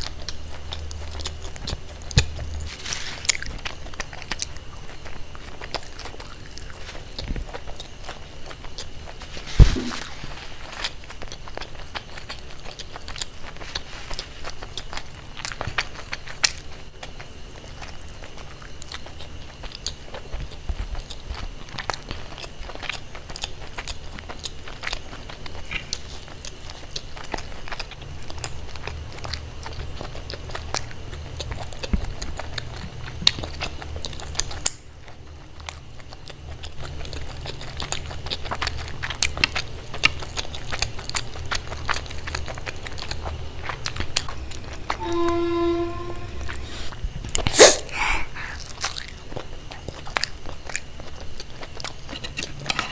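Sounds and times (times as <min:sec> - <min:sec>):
biting and chewing: 0:00.0 - 0:52.9
low hum: 0:41.6 - 0:49.0.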